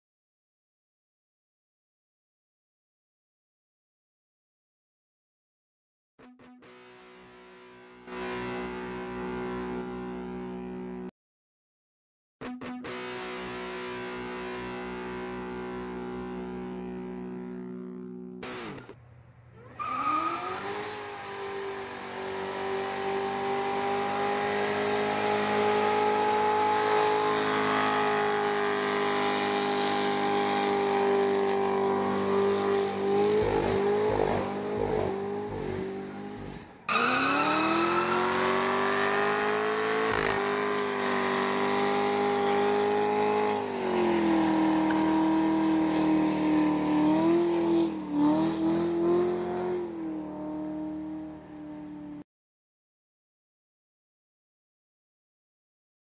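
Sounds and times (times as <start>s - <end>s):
car engine revving high: 19.6s - 52.2s.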